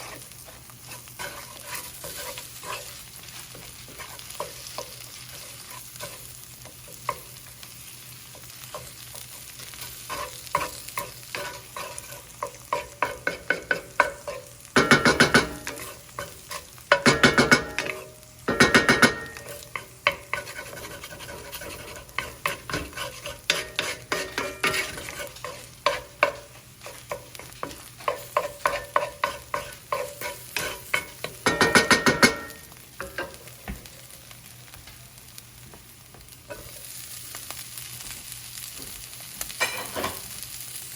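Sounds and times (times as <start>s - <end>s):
utensil scraping a pan: 0.0s - 7.2s, 8.7s - 33.4s
rice frying in a pan: 0.0s - 40.9s.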